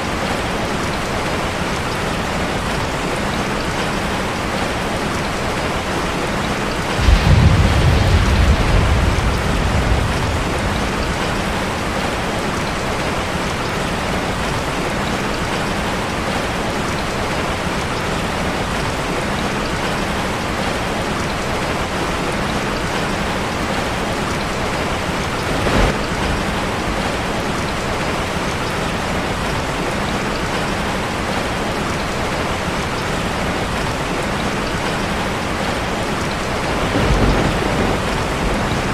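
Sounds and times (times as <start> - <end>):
heavy rain on a metal roof: 0.0 - 38.9
thunder rumble: 6.5 - 14.6, 24.3 - 28.2, 36.3 - 38.9.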